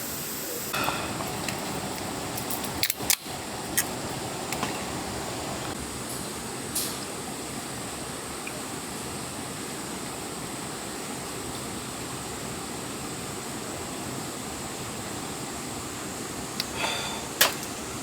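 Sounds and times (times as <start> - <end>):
flowing water rushing: 0.8 - 5.8.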